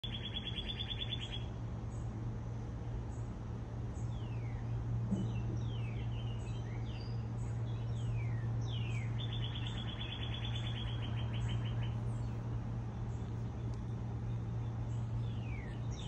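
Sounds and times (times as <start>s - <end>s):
bird trilling: 0.0s - 1.5s, 8.7s - 12.3s
songbirds whistling: 0.0s - 2.1s, 3.9s - 16.0s
low hum: 0.0s - 16.0s.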